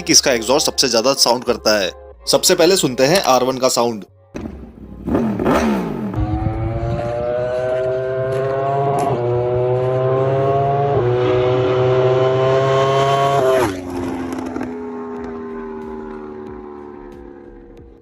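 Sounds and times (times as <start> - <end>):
motorcycle engine accelerating: 4.3 - 18.0.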